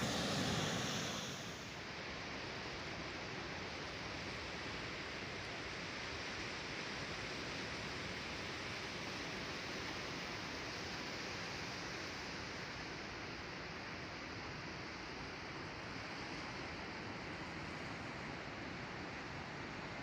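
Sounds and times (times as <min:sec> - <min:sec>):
sea surf: 0:00.0 - 0:01.7.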